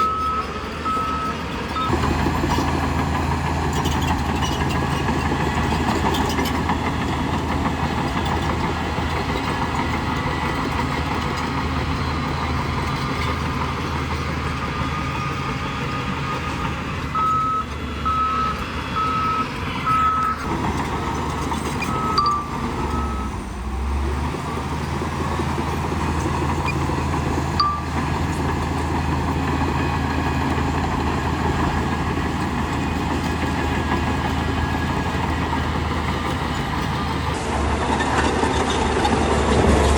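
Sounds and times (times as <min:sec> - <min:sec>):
reversing alarm beeping: 0:00.0 - 0:03.1, 0:14.0 - 0:23.5, 0:26.4 - 0:37.3
bulldozer diesel engine running: 0:00.0 - 0:39.9.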